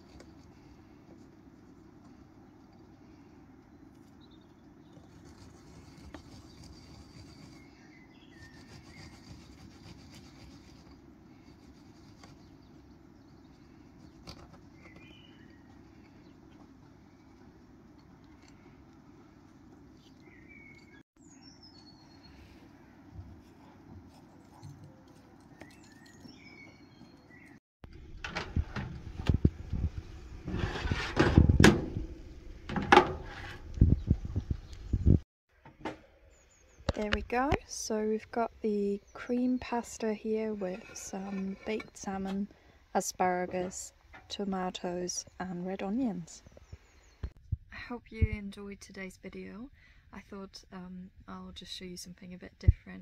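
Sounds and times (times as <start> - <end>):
low background hum: 0.0 - 53.0
small birds chirping: 2.0 - 23.8, 24.6 - 27.6, 33.8 - 35.2, 36.2 - 42.4, 44.3 - 47.4.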